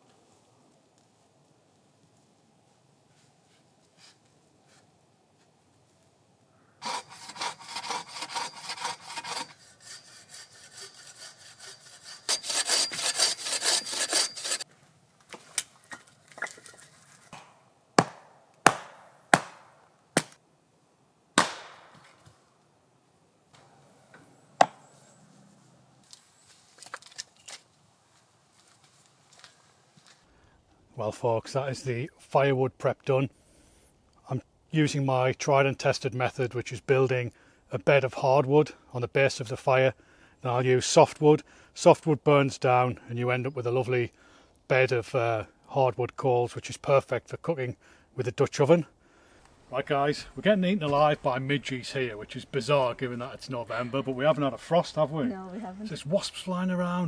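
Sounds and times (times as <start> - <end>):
saw rasping through wood: 6.8 - 14.6
sharp cracks and knocks of wood: 15.2 - 20.4, 21.4 - 22.4, 26.0 - 27.8.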